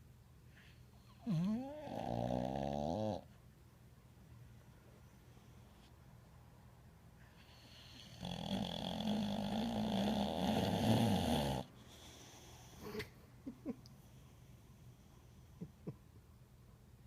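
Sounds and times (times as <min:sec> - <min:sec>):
dog snoring: 0:01.1 - 0:03.3, 0:07.4 - 0:13.0.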